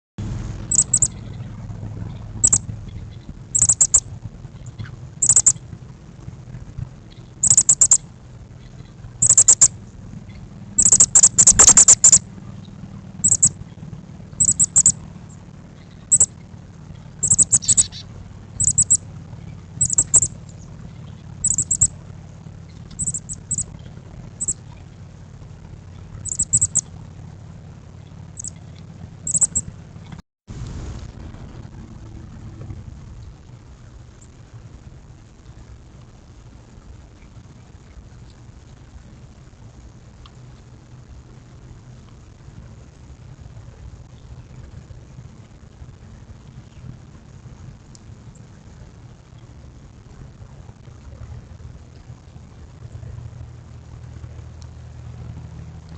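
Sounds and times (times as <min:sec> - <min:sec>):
low steady hum: 0:00.2 - 0:55.9
songbirds chirping: 0:00.7 - 0:04.0, 0:08.6 - 0:21.9, 0:22.7 - 0:25.0.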